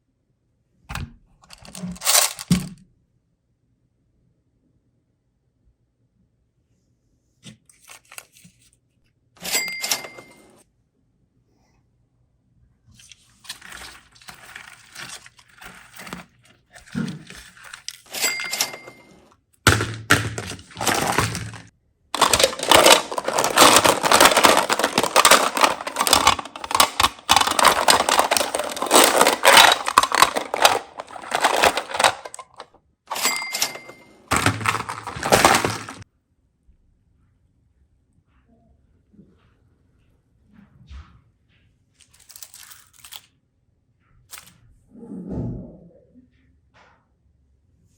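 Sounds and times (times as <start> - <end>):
foil and plastic crinkling: 13.1 - 18.9, 19.7 - 36.0, 42.1 - 43.2.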